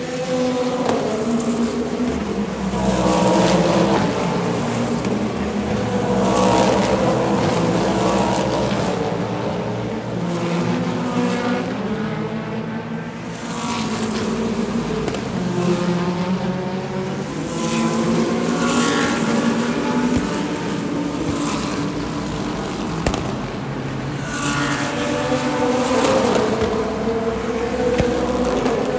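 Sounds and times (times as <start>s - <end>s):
racing cars passing at high revs: 0.0s - 28.9s.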